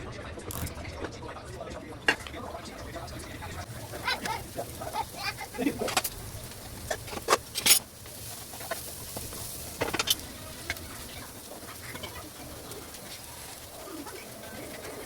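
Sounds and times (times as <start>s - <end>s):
pigeons cooing: 10.8s - 15.0s.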